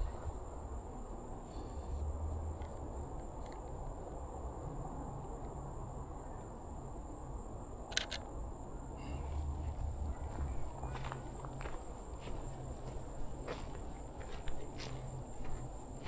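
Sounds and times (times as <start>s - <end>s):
low outdoor rumble: 0.0s - 16.0s
camera shutter double click: 7.9s - 8.2s.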